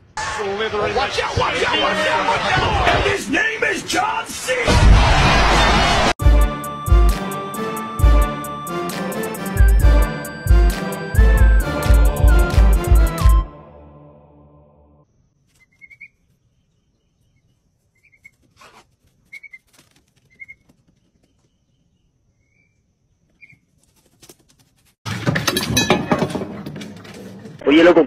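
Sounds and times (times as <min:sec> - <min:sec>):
loud noisy sound: 0:00.0 - 0:03.3
chick whistled peeps: 0:15.5 - 0:16.2, 0:17.4 - 0:18.4, 0:19.3 - 0:19.7.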